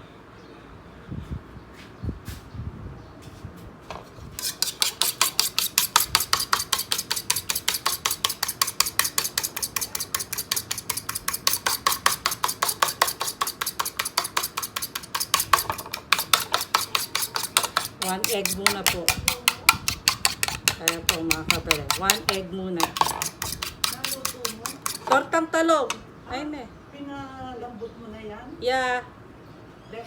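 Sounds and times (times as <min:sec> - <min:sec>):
egg beaten in a bowl: 0:04.4 - 0:25.3.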